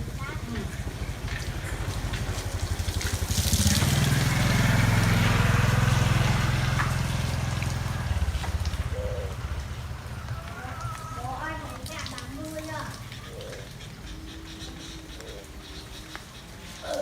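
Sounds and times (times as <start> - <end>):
engine running with fast pulse: 0.0 - 11.0.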